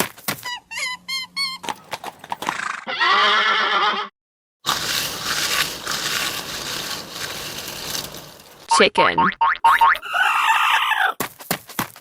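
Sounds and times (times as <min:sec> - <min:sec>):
hooves clip-clopping: 0:01.6 - 0:02.6
horse whinnying: 0:02.4 - 0:04.1.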